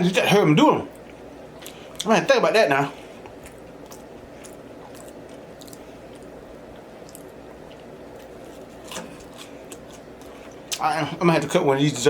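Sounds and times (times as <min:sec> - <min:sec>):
person chewing food: 0:00.9 - 0:02.1, 0:03.0 - 0:10.9.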